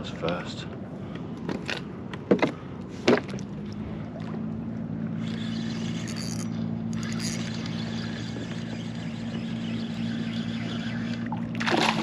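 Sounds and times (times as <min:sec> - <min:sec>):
electric trolling motor humming: 0:02.8 - 0:12.0.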